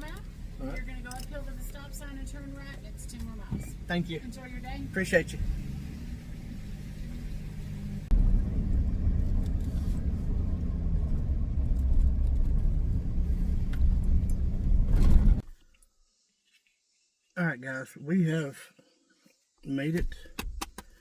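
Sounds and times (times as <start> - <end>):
car engine pulling away: 0.0 - 15.4.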